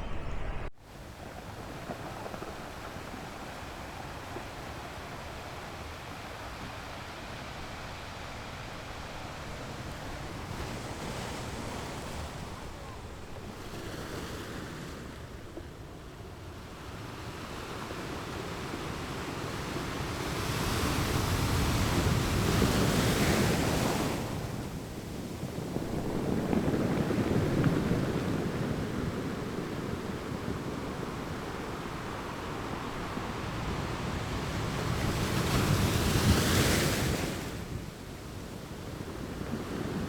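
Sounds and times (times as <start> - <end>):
sea waves breaking on shore: 16.9 - 40.0.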